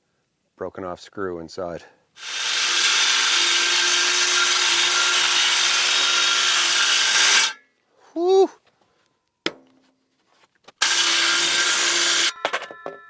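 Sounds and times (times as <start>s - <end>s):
circular saw cutting a board: 2.2s - 7.6s, 10.8s - 12.4s.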